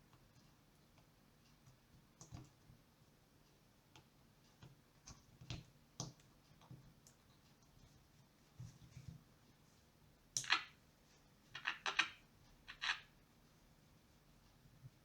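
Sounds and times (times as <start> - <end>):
faint irregular clicks and taps: 0.0 - 9.6.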